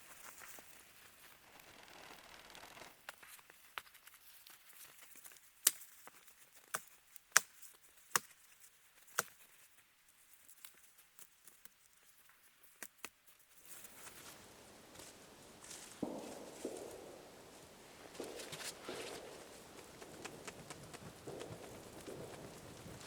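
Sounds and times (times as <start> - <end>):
campfire wood crackling: 0.0 - 23.0
soft rushing noise: 14.3 - 23.0.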